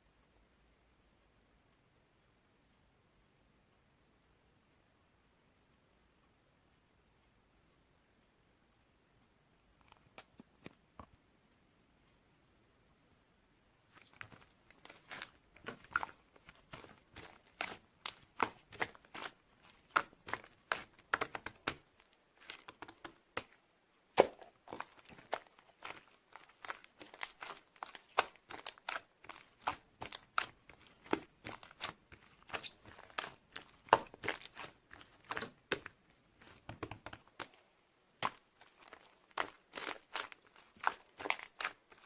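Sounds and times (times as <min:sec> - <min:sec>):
slime squishing with sticky pops: 0:13.8 - 0:42.0.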